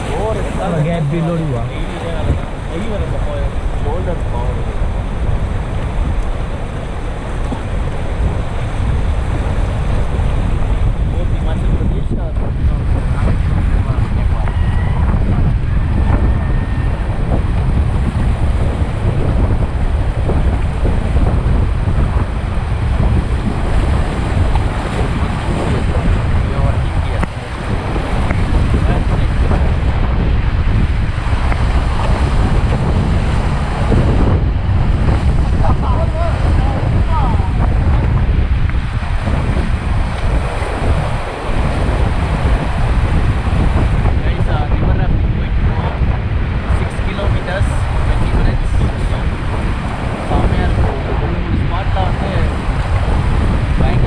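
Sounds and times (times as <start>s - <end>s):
river rapids rushing: 0.0s - 3.4s
whitewater rushing: 0.0s - 5.6s, 38.8s - 44.4s
wind buffeting microphone: 0.0s - 54.0s.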